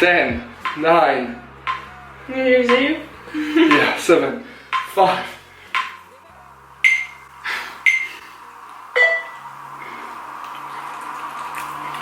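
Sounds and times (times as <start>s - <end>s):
noodles being slurped: 9.7s - 12.0s.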